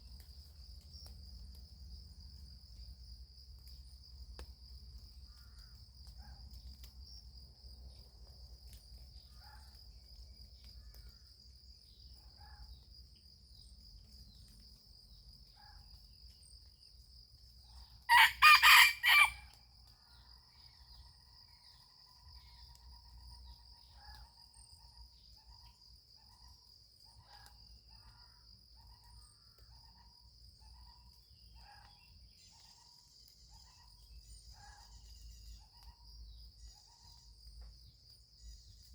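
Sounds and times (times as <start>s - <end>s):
rooster crowing: 18.1s - 19.4s.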